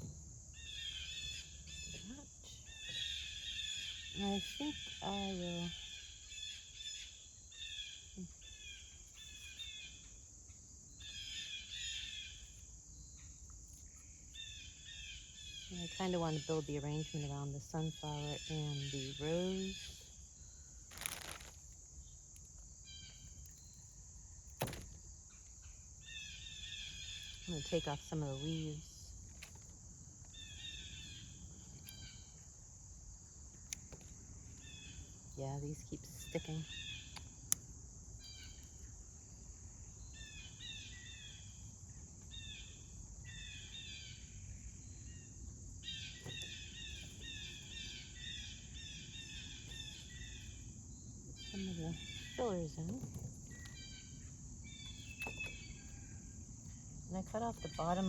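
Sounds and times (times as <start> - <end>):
birds calling faintly: 0.0 - 58.0
high insect drone: 0.0 - 58.0
brief rustle: 20.9 - 21.7.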